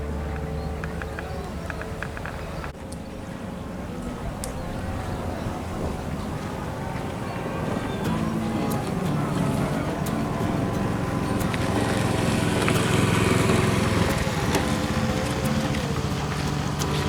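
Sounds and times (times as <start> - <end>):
motor engine running: 0.0 - 2.8, 4.0 - 17.0.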